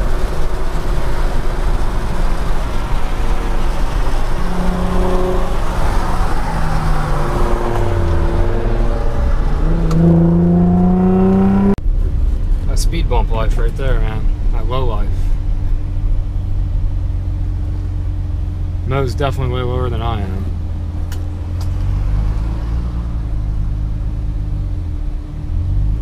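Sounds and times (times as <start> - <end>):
car engine accelerating: 0.0 - 12.8, 15.3 - 26.0.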